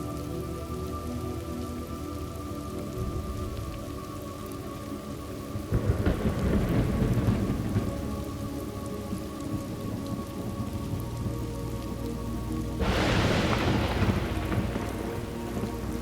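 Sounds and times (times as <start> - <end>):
steady rain: 0.0 - 16.0
thunder rumbling: 5.7 - 11.4, 12.8 - 16.0.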